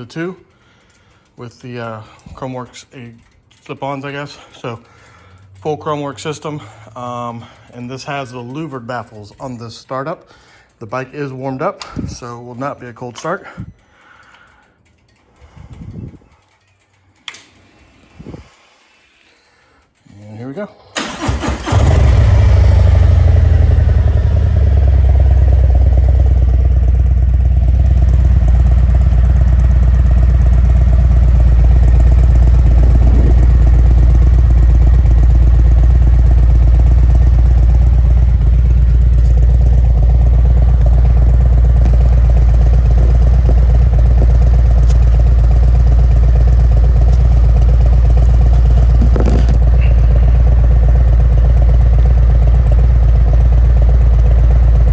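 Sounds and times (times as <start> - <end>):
motorcycle engine idling: 21.0 - 54.9.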